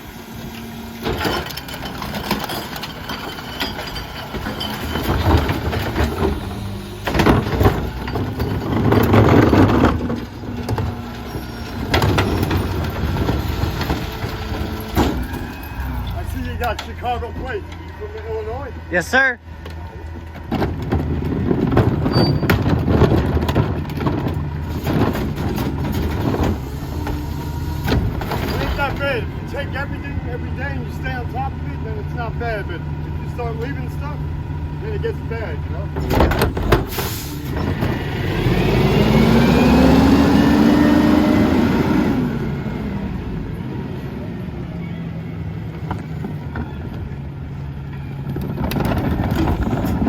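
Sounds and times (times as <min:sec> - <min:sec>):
garbage truck engine rumble: 0:00.0 - 0:50.0
clatter of knocks and rattles: 0:01.0 - 0:18.4, 0:19.6 - 0:29.2, 0:35.8 - 0:38.1, 0:47.8 - 0:50.0.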